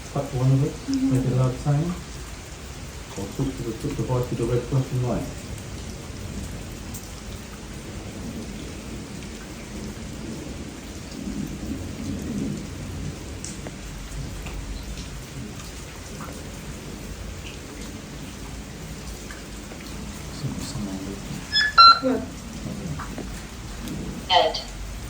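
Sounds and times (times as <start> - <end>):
steady rain falling: 0.0 - 25.0
drip-like ticks: 0.6 - 7.6, 13.4 - 22.0, 23.0 - 24.0.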